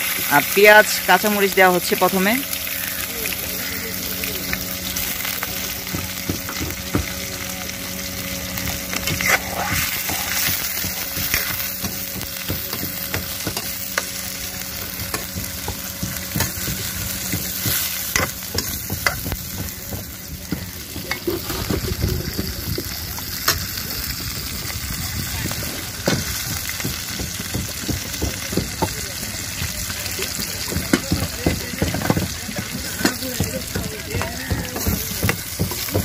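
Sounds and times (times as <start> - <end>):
onions sizzling in hot oil: 0.0 - 36.0
stirrer knocking and scraping pot: 8.6 - 14.2, 14.8 - 22.9, 25.5 - 29.0, 29.6 - 36.0.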